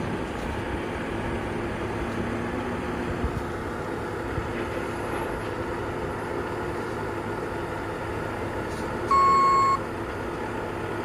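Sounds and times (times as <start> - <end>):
diesel engine running: 0.0 - 11.0
loud electronic beep: 9.1 - 9.8.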